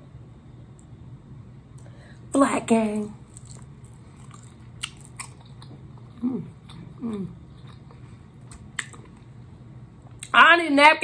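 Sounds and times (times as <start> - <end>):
person chewing and lip-smacking: 3.3 - 9.3.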